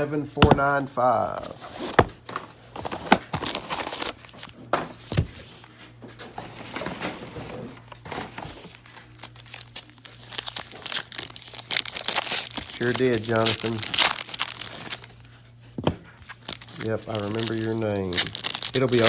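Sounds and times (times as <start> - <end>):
plastic packaging crinkling and tearing: 2.8 - 4.6, 8.1 - 15.4, 16.2 - 19.0.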